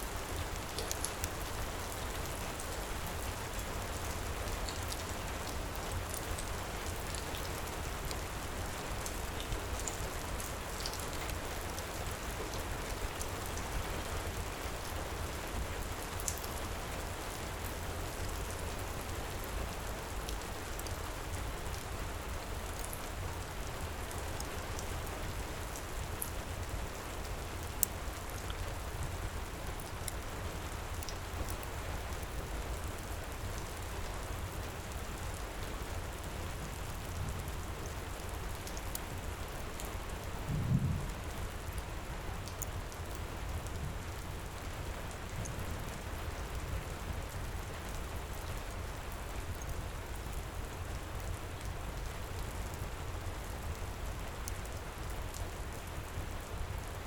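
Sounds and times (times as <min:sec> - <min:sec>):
heavy rain: 0:00.0 - 0:57.0
low rumble: 0:40.5 - 0:41.2.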